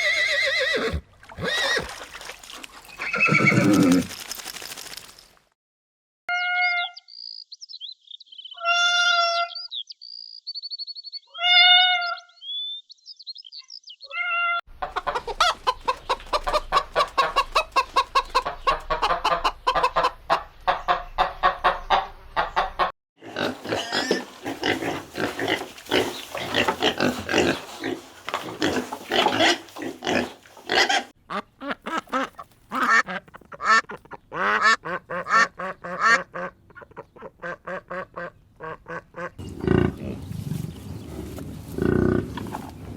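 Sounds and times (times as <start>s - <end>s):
animal calls chorus: 2.8s - 4.3s, 23.2s - 40.4s.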